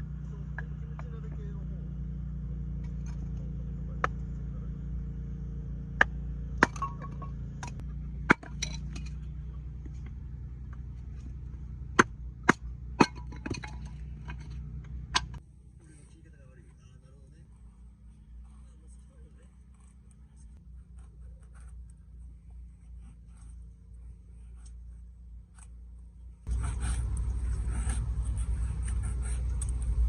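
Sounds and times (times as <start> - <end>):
steady low rumble: 0.0 - 30.0
hard objects clinking and knocking: 6.6 - 9.4, 12.0 - 15.4.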